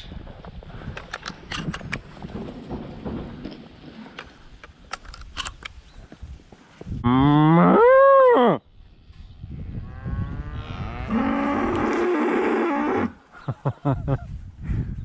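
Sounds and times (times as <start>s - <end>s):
cattle mooing: 10.0s - 13.2s.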